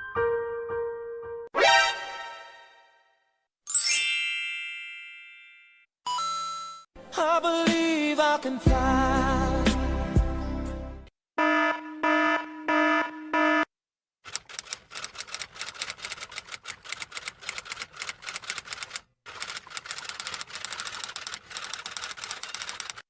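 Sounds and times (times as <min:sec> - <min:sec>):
loud buzzer beeps: 0:11.4 - 0:13.7
typing keys clattering: 0:14.3 - 0:23.0.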